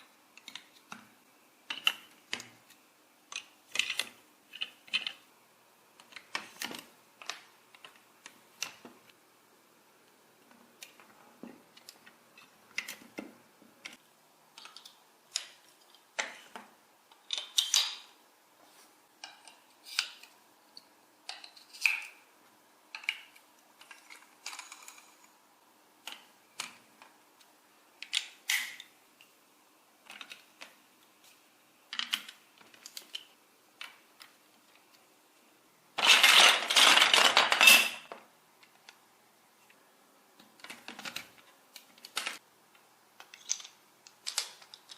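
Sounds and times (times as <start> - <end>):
rapid clatter of small pieces: 36.0 - 38.1
small hard pieces clicking: 36.0 - 38.2, 43.2 - 44.9.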